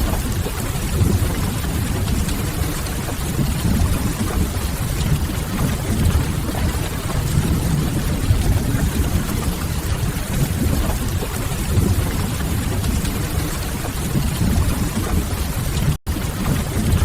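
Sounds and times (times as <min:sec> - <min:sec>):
rain: 0:00.0 - 0:17.0
deep low rumble: 0:05.2 - 0:11.1.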